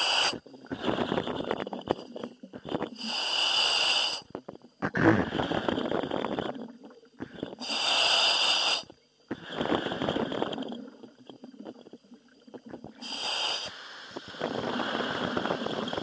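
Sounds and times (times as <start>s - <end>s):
diver breathing through regulator: 0.0s - 4.3s, 7.2s - 10.7s, 12.9s - 16.0s.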